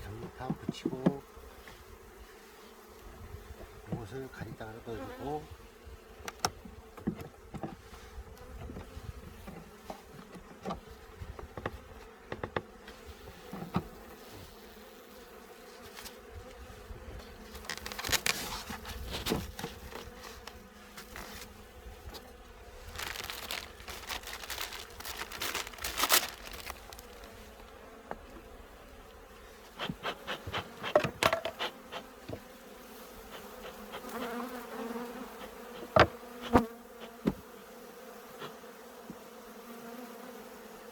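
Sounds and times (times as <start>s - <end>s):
honeybees buzzing: 0.0s - 40.9s
hive frames clattering: 17.4s - 21.5s, 22.2s - 28.5s, 29.9s - 32.6s, 33.4s - 37.6s.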